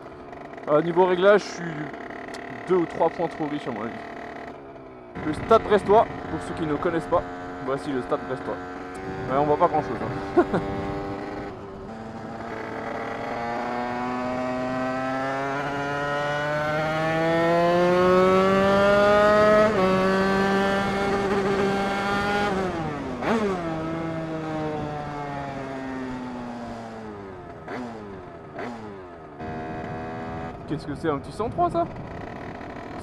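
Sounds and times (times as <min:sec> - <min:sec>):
two-stroke moped engine accelerating: 0:00.0 - 0:33.0.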